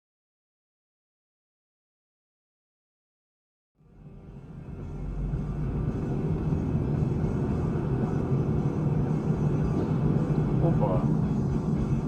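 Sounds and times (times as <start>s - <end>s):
vehicle driving rumble: 3.8s - 12.0s.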